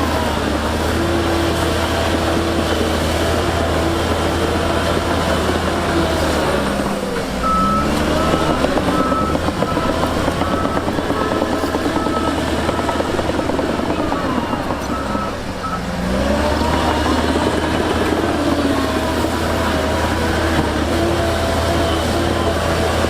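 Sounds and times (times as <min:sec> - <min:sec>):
heavy diesel engines running: 0:00.0 - 0:23.0
reversing alarm beeping: 0:07.4 - 0:15.9.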